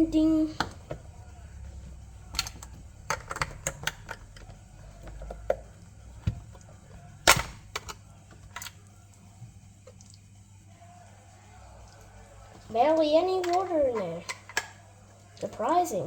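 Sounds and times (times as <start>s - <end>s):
plastic pieces clicking: 2.4s - 5.5s.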